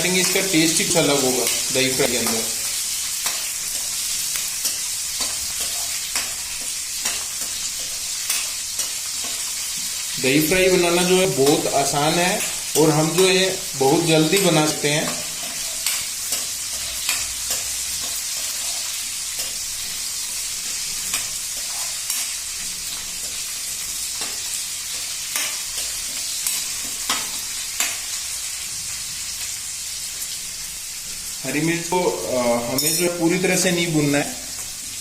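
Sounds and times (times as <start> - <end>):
food sizzling in oil: 0.0 - 35.0
pan stirring clicks and scrapes: 3.2 - 10.0, 14.3 - 28.0.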